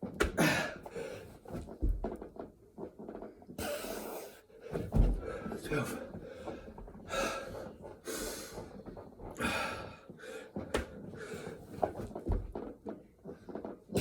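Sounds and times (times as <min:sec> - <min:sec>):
person breathing hard and gasping: 0:03.6 - 0:08.8, 0:09.4 - 0:11.6.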